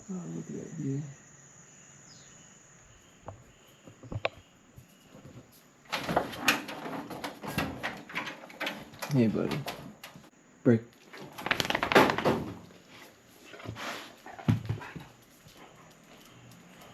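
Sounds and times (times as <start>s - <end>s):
insect chirring: 0.0s - 5.9s, 14.2s - 16.9s
rapid clattering and knocking: 5.9s - 10.3s, 11.2s - 12.6s.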